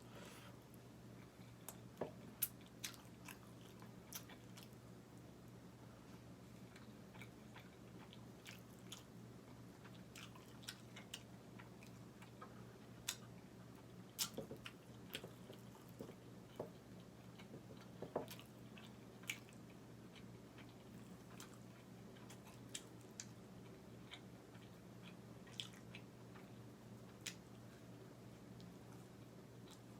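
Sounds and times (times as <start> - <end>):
faint low hum: 0.0 - 29.9
chewing food: 1.2 - 4.8, 6.5 - 27.6, 28.6 - 29.9.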